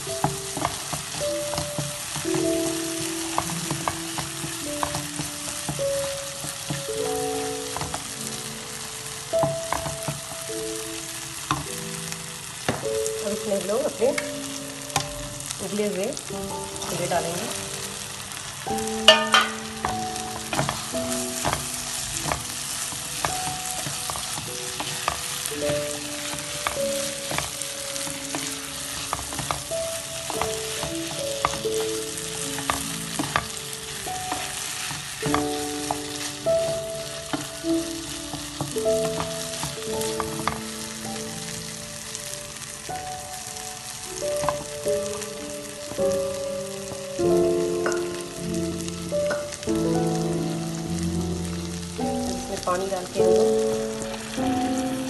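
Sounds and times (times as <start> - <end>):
spatula knocking a pan: 0.0 - 8.3, 9.3 - 10.4, 18.8 - 41.0, 44.3 - 45.2
chickpeas sizzling in a pan: 0.0 - 55.0
simple melody of held notes: 0.0 - 55.0.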